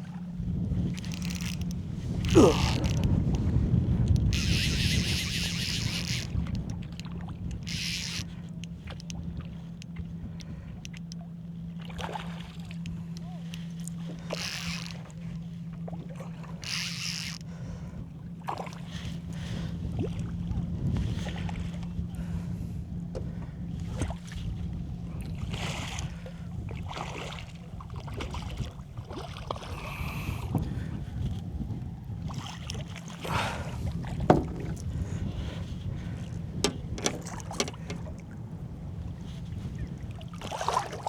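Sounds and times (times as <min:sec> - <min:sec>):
wind rumbling on microphone: 0:00.0 - 0:10.9, 0:16.6 - 0:41.0
water slapping boat hull: 0:00.0 - 0:41.0
knocks on boat: 0:34.0 - 0:35.1, 0:36.6 - 0:38.4.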